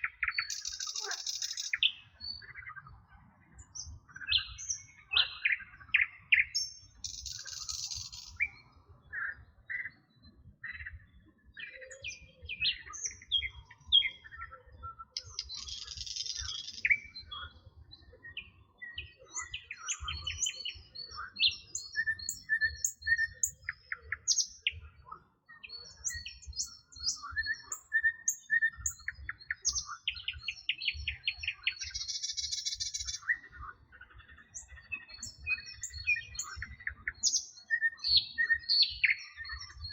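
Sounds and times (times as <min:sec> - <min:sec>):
songbirds chirping and whistling: 0:00.0 - 0:39.9.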